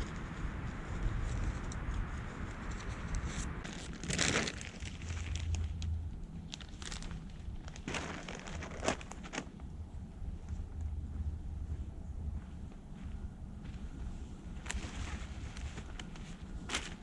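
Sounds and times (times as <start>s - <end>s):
crinkling when handled: 0.0s - 11.0s, 14.6s - 17.0s
steady low hum: 0.0s - 17.0s.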